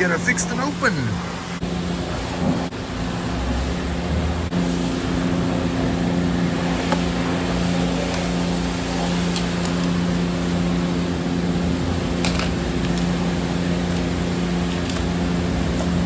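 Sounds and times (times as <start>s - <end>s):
constant hiss: 0.0s - 2.7s
machine hum of motors and pumps: 0.0s - 16.0s.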